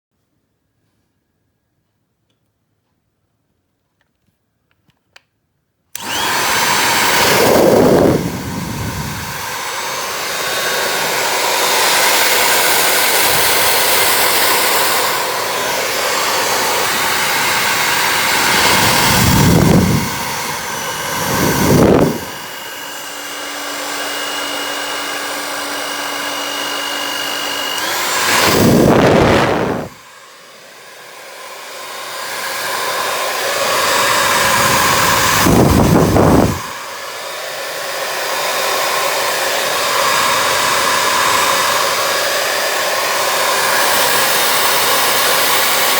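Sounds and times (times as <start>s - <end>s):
hair dryer blowing: 5.9s - 45.9s
steady whine: 27.4s - 30.1s.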